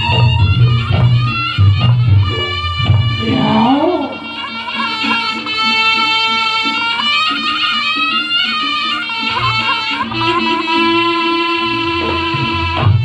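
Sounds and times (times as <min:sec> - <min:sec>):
reed trumpet melody: 0:00.0 - 0:13.0
low drum strokes: 0:01.0 - 0:04.4
held low tone: 0:02.2 - 0:04.5.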